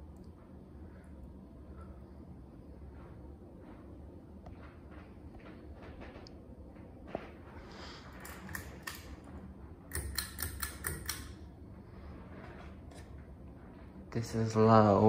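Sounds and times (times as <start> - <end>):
fan pull-chain switch clicks: 8.2 - 9.1, 9.9 - 11.4.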